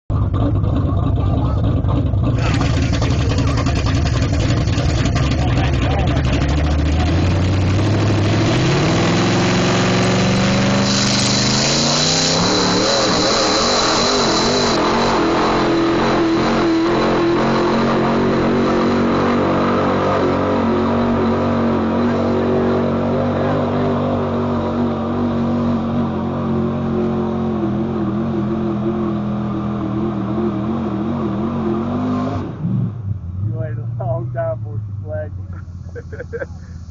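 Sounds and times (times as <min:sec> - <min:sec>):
truck engine at full throttle: 0:00.0 - 0:36.9
bright hiss: 0:10.8 - 0:14.8.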